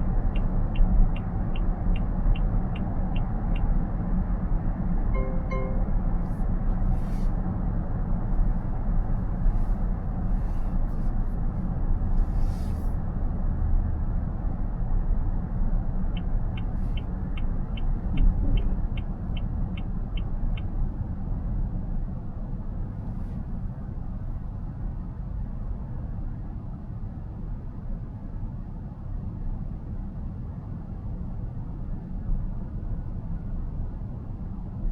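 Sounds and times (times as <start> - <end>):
turn signal ticking: 0.0 - 4.1, 16.1 - 21.0
road and tyre rumble in car: 0.0 - 34.9.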